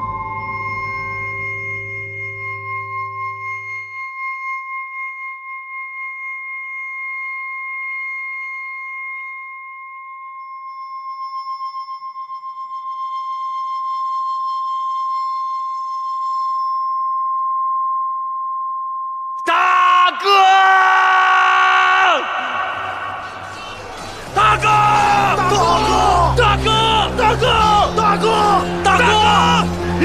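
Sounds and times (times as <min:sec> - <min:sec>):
high-pitched ringing tone: 0:00.0 - 0:19.4.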